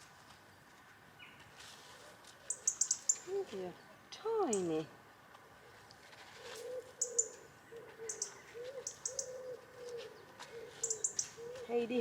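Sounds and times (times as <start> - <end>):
small birds chirping: 2.4 - 4.9, 6.4 - 12.0
pigeon cooing: 6.4 - 11.8.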